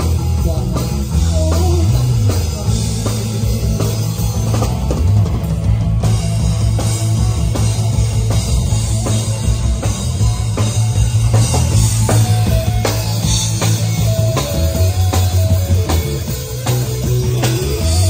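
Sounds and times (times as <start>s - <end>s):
bass line: 0.0s - 18.0s
drum kit beat: 0.0s - 18.0s
guitar: 0.0s - 18.0s.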